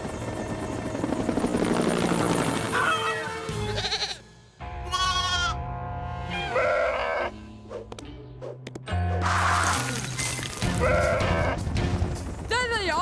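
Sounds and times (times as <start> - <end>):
helicopter whirring: 0.0 - 3.7, 10.8 - 13.0
goats bleating: 3.6 - 4.2, 4.9 - 5.6.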